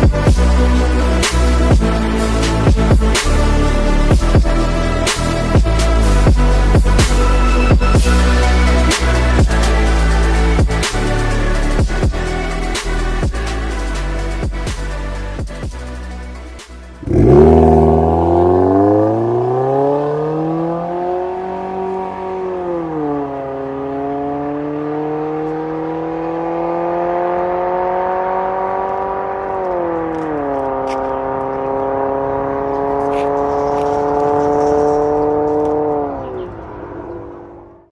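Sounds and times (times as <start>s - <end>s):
car engine exhaust under load: 17.0s - 21.9s.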